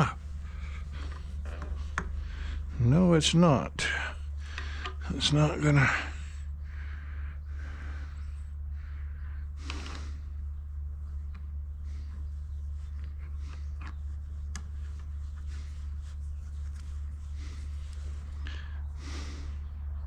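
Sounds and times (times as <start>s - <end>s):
person breathing: 0.0s - 2.8s, 3.8s - 5.0s, 5.8s - 10.5s, 17.2s - 19.9s
steady low hum: 0.0s - 20.0s.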